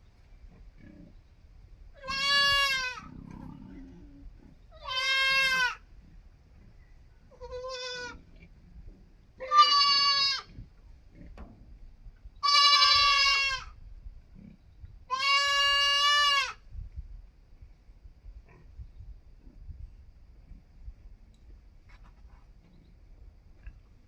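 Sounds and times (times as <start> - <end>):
young goat bleating: 2.0 - 3.1, 4.7 - 5.8, 7.3 - 8.2, 9.4 - 10.5, 12.4 - 13.8, 15.1 - 16.6.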